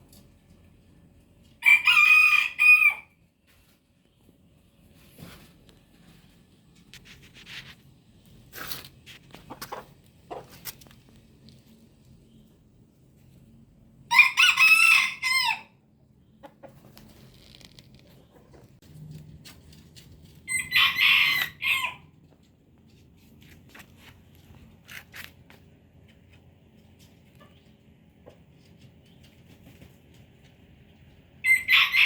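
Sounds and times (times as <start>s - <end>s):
rooster crowing: 1.6s - 3.2s, 14.1s - 15.8s, 20.5s - 22.1s, 31.4s - 32.0s.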